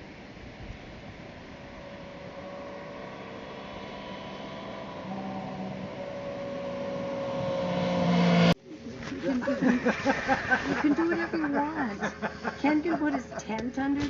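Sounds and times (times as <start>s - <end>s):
engine drone: 0.0s - 8.6s.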